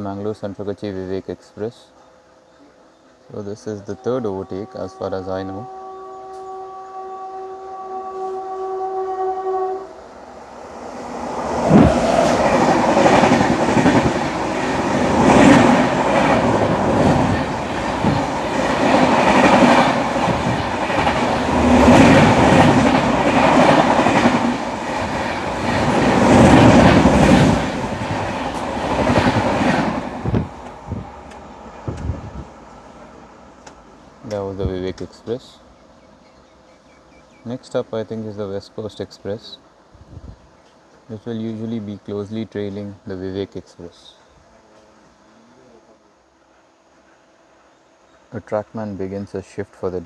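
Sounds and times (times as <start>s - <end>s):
train horn: 3.6s - 11.0s, 15.2s - 31.0s.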